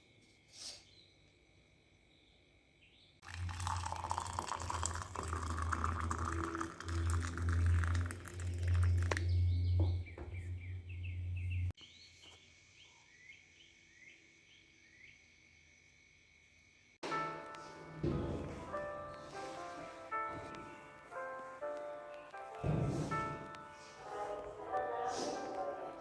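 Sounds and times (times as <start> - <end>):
pet birds chirping: 8.8 - 15.2.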